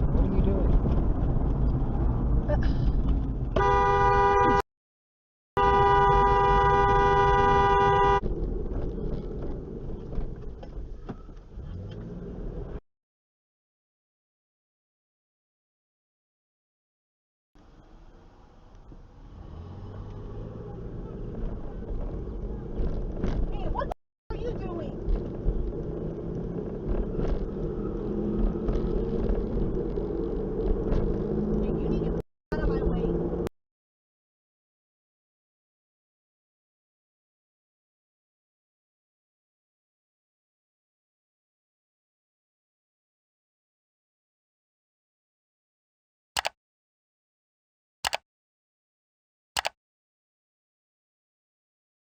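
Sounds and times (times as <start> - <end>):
car road and engine noise: 0.0 - 4.6, 5.6 - 12.8, 17.6 - 33.5
car horn blast: 3.6 - 4.6, 5.6 - 8.2.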